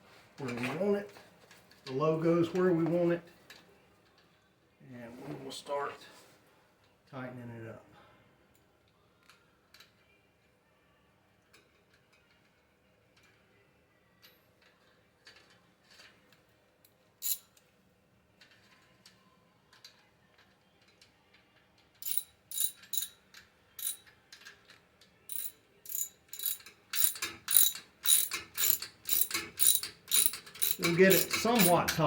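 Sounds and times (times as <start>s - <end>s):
ratchet clicking: 17.2s - 17.5s, 22.0s - 23.2s, 23.8s - 24.1s, 25.3s - 32.0s.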